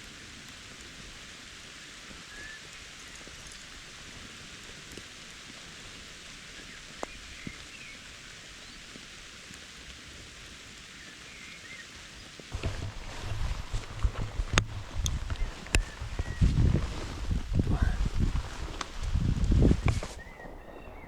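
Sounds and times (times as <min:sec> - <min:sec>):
steady rain hiss: 0:00.0 - 0:21.0
raindrops ticking: 0:12.5 - 0:20.2
low thumps: 0:12.6 - 0:20.1.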